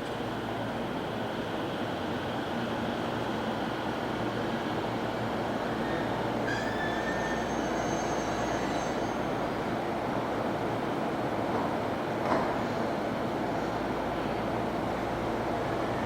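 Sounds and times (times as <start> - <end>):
train wheels rumbling on rail: 0.0 - 16.0
high wheel squeal: 5.8 - 9.4.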